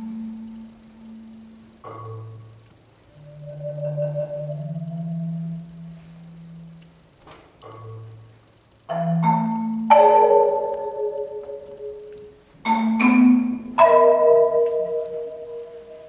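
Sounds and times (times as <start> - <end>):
marimba notes: 0.0 - 16.0.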